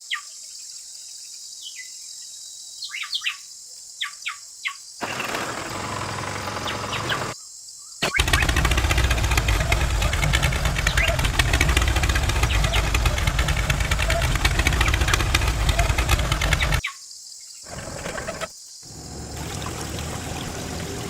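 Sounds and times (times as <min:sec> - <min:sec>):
small birds chirping: 0:00.0 - 0:05.1, 0:06.4 - 0:18.9
fast-pulsing mechanical noise: 0:05.0 - 0:07.4, 0:08.0 - 0:16.8, 0:17.7 - 0:19.3.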